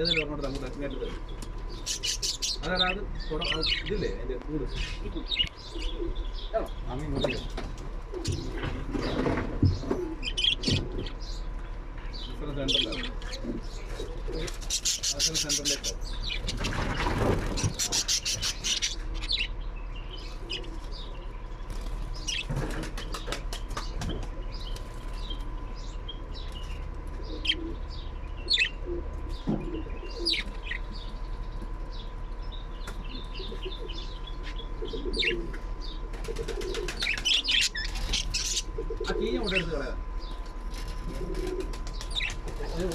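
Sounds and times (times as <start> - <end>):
low bird coos: 4.7 - 11.3, 26.6 - 31.2, 33.0 - 42.9
bird wings flapping: 16.5 - 18.6, 21.7 - 25.2, 36.1 - 38.3, 40.7 - 42.9.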